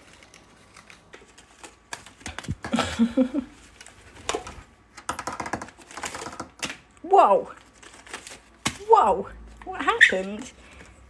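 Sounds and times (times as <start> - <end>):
tea packets tapping and rustling: 3.6 - 7.0.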